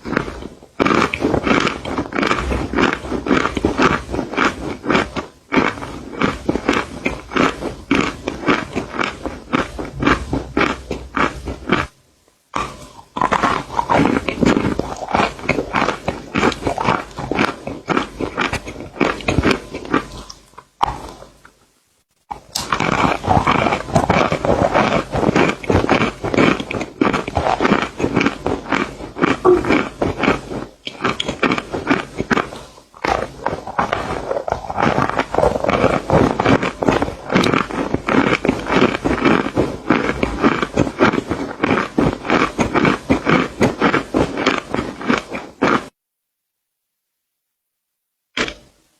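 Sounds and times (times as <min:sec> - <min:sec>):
crunching and chewing: 0:00.0 - 0:12.0, 0:12.6 - 0:21.7, 0:22.3 - 0:45.9, 0:48.4 - 0:48.7.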